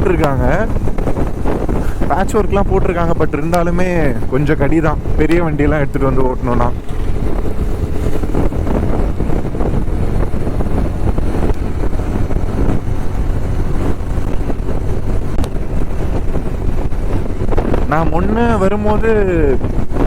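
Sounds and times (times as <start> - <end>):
wind rushing over microphone: 0.0 - 20.0
motorcycle engine running: 5.0 - 18.1.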